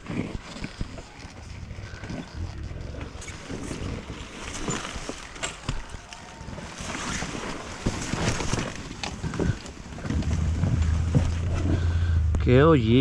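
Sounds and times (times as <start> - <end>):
wind noise on microphone: 6.4 - 12.4.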